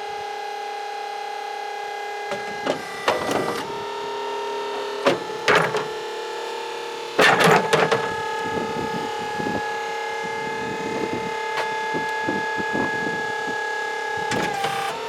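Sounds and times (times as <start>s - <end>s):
hydraulic pump whining: 2.2s - 15.0s.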